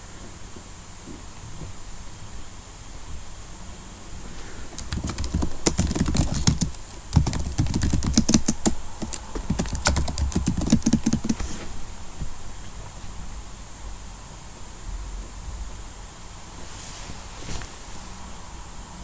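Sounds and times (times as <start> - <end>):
rapid irregular clicks and taps: 4.7 - 11.6.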